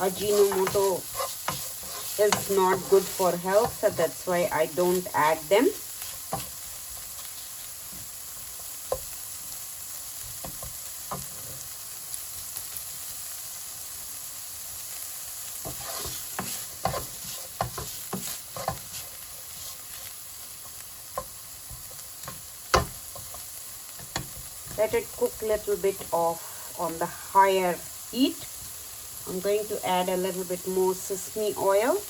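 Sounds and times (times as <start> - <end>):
spatula scraping pan: 0.0 - 7.4, 15.5 - 23.4
vegetables sizzling in oil: 0.0 - 32.0.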